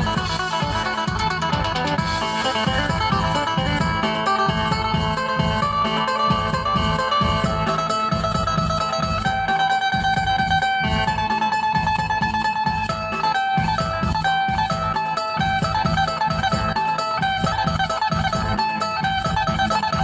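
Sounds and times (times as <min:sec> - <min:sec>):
bass and drum beat: 0:00.0 - 0:20.0
plucked lute melody: 0:00.0 - 0:20.0.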